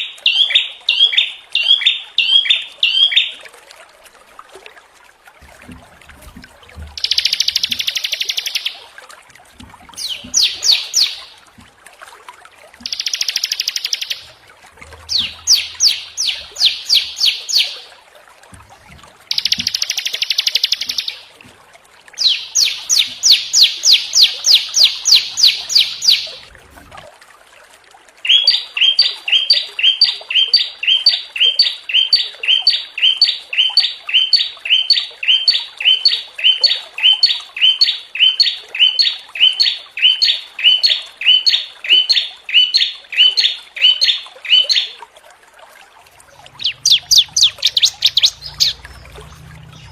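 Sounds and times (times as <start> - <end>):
songbirds buzzy trills: 7.0 - 8.8, 9.9 - 11.5, 12.8 - 18.0, 18.7 - 21.3, 22.2 - 26.5, 28.2 - 45.0, 46.1 - 49.9
bird two-part chirps: 46.6 - 48.8.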